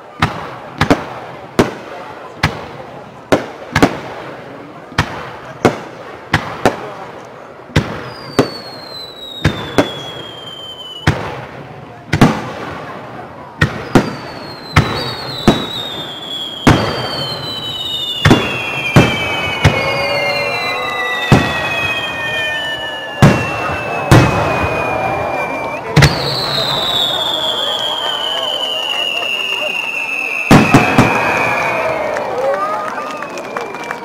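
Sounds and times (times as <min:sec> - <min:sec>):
falling firework whistles: 0:07.9 - 0:11.3, 0:13.7 - 0:32.2.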